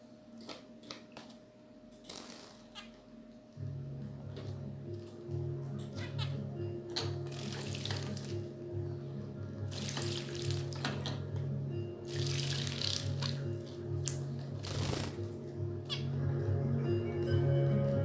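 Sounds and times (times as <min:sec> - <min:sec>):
background music with steady beat: 0:03.0 - 0:18.0
birds splashing in water: 0:12.1 - 0:13.4.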